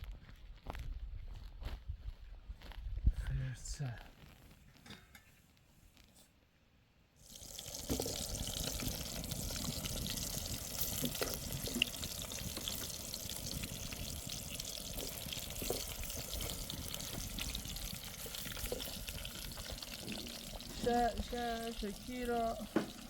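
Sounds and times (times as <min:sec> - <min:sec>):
water running: 0:07.2 - 0:23.0.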